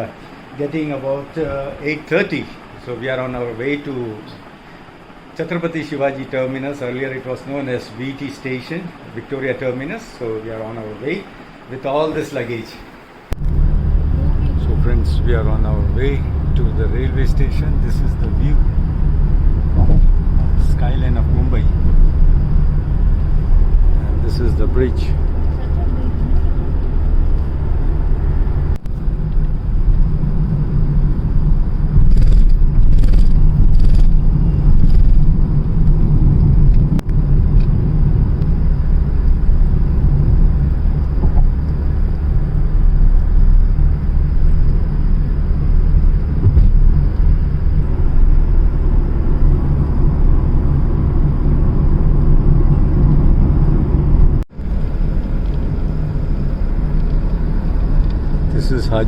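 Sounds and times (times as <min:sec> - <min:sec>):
car interior road rumble: 0:13.3 - 0:59.0.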